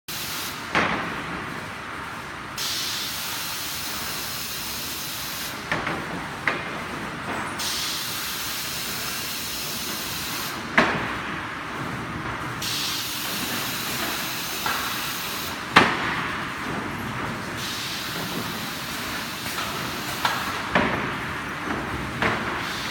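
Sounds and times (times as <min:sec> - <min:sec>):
loader steady hiss: 0:02.6 - 0:05.6, 0:07.6 - 0:10.7, 0:12.6 - 0:15.7.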